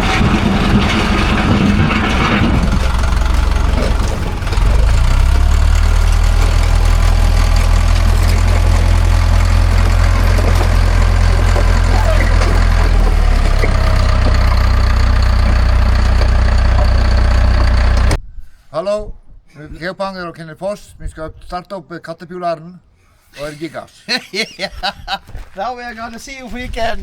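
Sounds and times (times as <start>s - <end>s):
diesel engine running deep and low: 0.0s - 18.2s.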